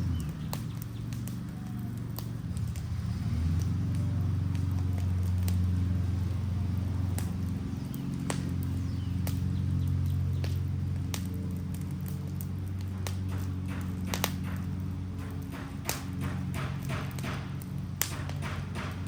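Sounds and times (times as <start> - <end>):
low fire rumble: 0.0 - 19.0
wood fire crackling and popping: 0.0 - 19.0.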